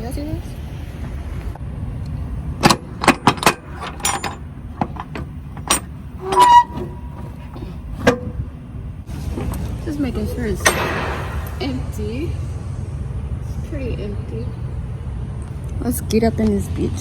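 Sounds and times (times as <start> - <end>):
low steady rumble: 0.0 - 17.0
metal door latches clanking: 2.6 - 8.4, 10.6 - 11.8.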